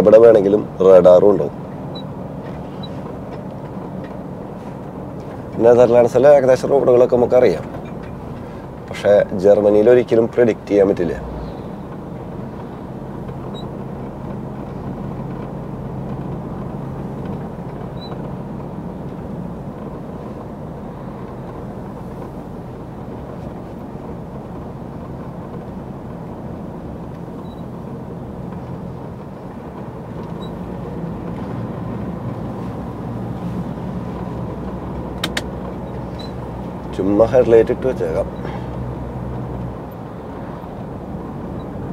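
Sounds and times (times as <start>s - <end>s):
lorry engine and road hum: 0.0s - 41.9s
sharp clicks: 35.2s - 35.5s.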